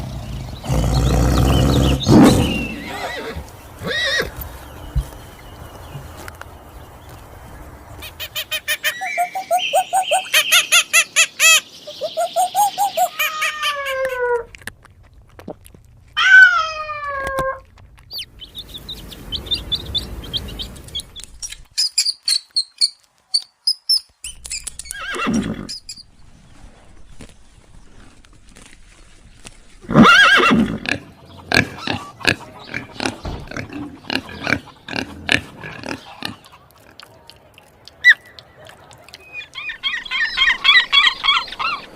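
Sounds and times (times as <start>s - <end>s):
high chirping: 8.0s - 13.3s, 18.1s - 25.0s.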